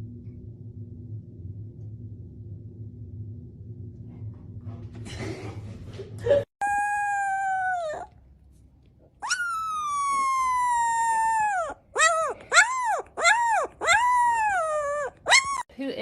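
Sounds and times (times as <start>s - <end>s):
dog howling: 6.6s - 8.2s, 9.2s - 15.7s.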